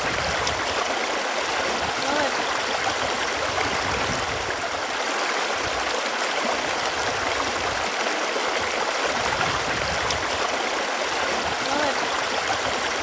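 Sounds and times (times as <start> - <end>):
running water: 0.0 - 13.0.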